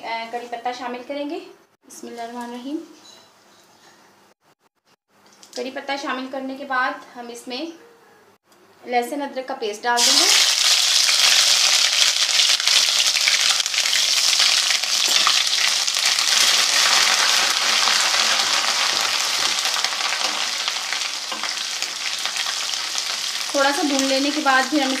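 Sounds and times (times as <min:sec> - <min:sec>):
paste sizzling in hot fat: 0:10.0 - 0:25.0.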